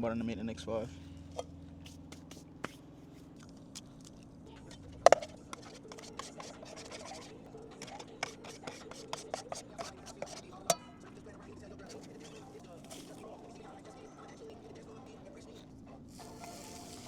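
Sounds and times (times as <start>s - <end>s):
low steady hum: 0.0s - 17.0s
utensils scraping and tapping: 5.0s - 11.0s.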